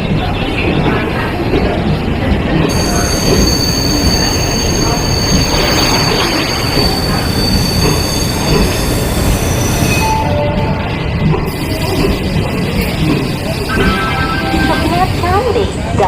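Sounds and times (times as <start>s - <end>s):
train rumbling: 0.0s - 16.0s
high wheel squeal: 2.7s - 10.4s.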